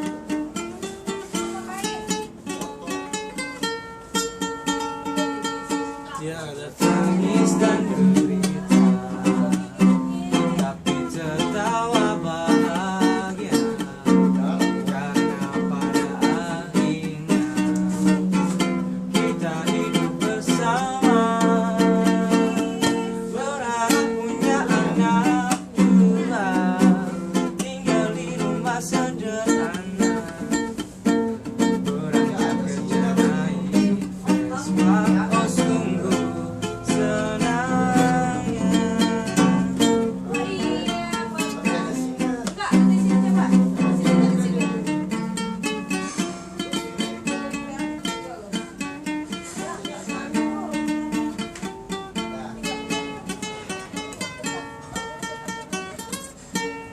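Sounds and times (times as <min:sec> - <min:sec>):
strummed acoustic string instrument: 0:00.0 - 0:56.9
person singing: 0:04.4 - 0:48.1.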